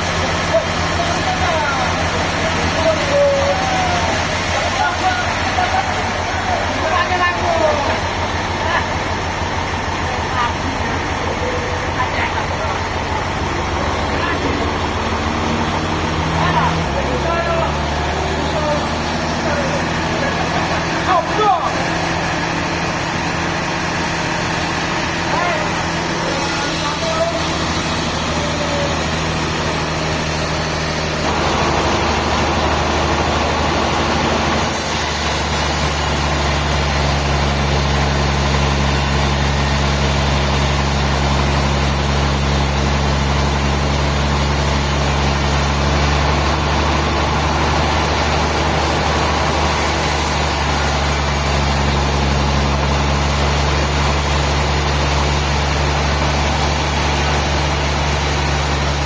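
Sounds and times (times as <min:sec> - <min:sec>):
heavy engine running: 0:00.0 - 0:59.0.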